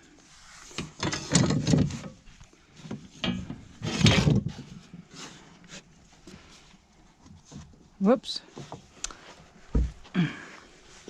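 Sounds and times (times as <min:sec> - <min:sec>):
wooden boards knocking and scraping: 0:00.8 - 0:02.2, 0:02.9 - 0:05.3, 0:09.7 - 0:10.0.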